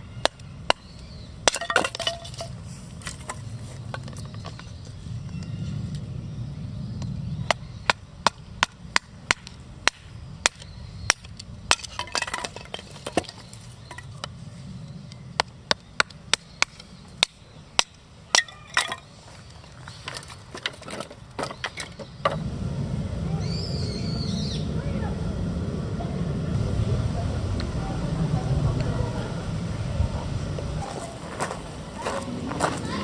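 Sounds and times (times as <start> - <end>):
low steady rumble: 22.2 - 33.0.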